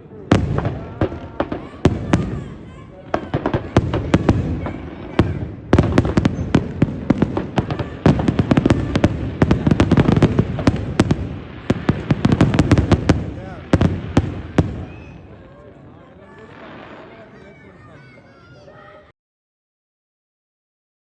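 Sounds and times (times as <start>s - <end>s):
fireworks cracks and bangs: 0.1s - 15.5s, 16.2s - 17.6s.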